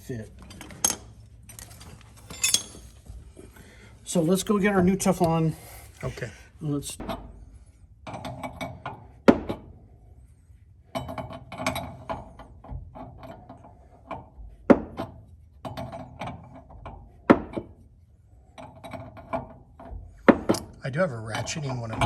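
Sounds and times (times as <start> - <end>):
tools clattering: 0.3 - 3.2, 20.3 - 20.8.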